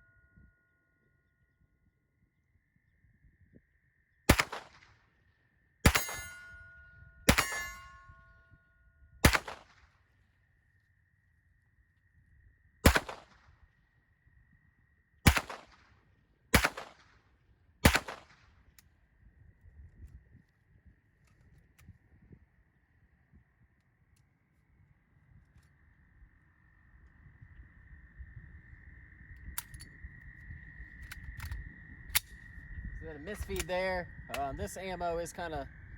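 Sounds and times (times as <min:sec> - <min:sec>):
pistol shots: 0:04.3 - 0:04.9, 0:05.8 - 0:06.6, 0:07.3 - 0:08.0, 0:09.2 - 0:09.8, 0:12.8 - 0:13.4, 0:15.3 - 0:15.8, 0:16.5 - 0:17.1, 0:17.8 - 0:18.4
metallic ring: 0:05.9 - 0:08.8.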